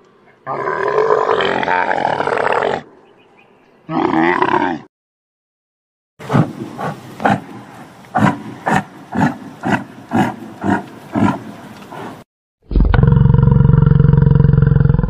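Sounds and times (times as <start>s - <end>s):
yak grunting: 6.2s - 12.2s.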